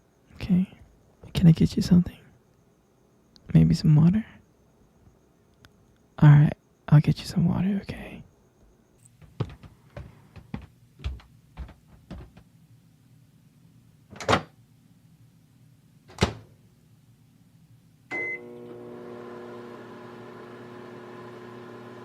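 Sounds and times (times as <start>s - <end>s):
microwave beep: 18.1s - 19.4s
microwave humming: 18.1s - 22.0s.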